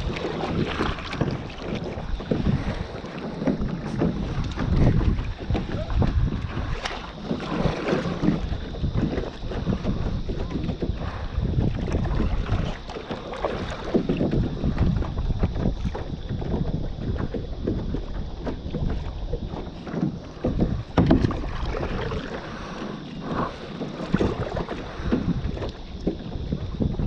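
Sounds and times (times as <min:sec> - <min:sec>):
water splashing around a kayak: 0:00.0 - 0:27.0
wind buffeting microphone: 0:00.0 - 0:27.0.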